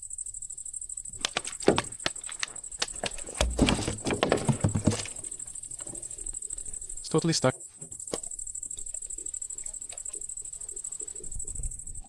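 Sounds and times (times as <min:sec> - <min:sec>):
dull thumps: 0:01.1 - 0:06.4
fishing tackle clicks and knocks: 0:01.2 - 0:06.0.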